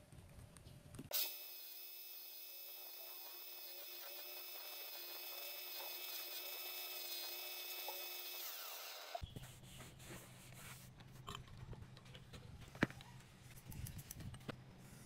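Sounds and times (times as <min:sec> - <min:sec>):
power tool motor whining: 0:01.1 - 0:09.2.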